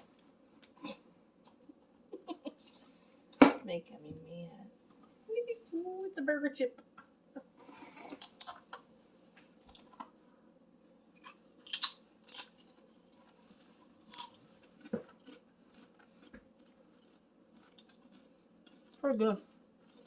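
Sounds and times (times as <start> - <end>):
crunching potato crisps: 11.2 - 20.0.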